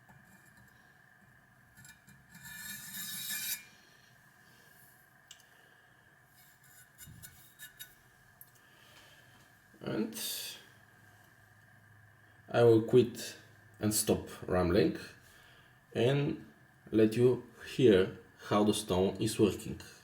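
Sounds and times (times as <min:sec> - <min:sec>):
cleaver scraping abrasive surface: 0:01.8 - 0:03.7, 0:06.4 - 0:08.0.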